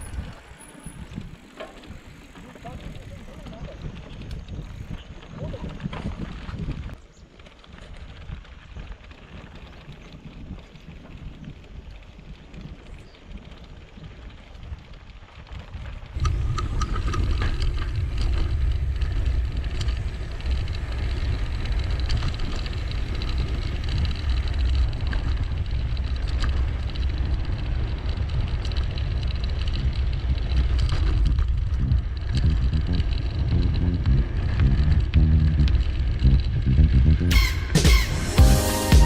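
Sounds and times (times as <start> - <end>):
wind buffeting microphone: 0.0 - 7.0, 7.7 - 37.3
bike clicks and rattles: 0.0 - 36.7.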